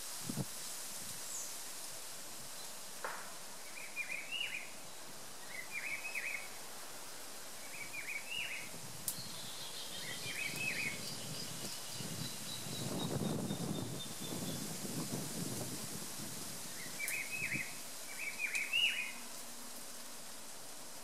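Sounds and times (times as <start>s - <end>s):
outdoor background noise: 0.0s - 21.0s
bird chirping: 16.8s - 19.2s.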